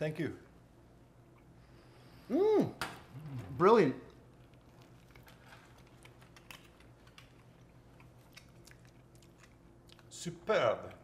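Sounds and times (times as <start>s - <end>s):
low steady hum: 0.0s - 11.0s
faint chewing of bread: 3.1s - 10.3s.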